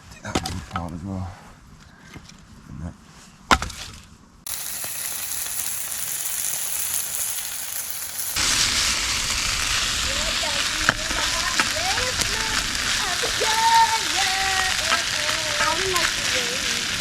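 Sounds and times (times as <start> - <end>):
sausages sizzling in a frying pan: 4.5 - 17.0.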